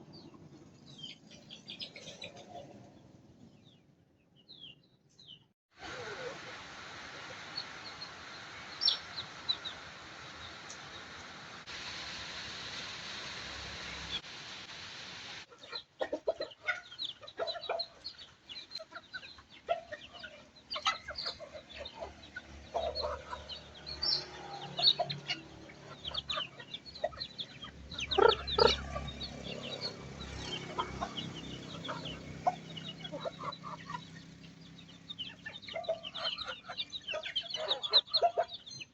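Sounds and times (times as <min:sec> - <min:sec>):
steady hiss: 0:05.8 - 0:15.5
chickens clucking: 0:15.5 - 0:38.9.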